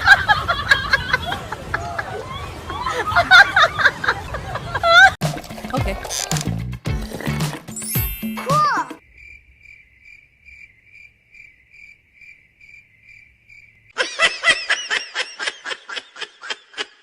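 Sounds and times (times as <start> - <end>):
cricket chirping: 9.0 - 14.0.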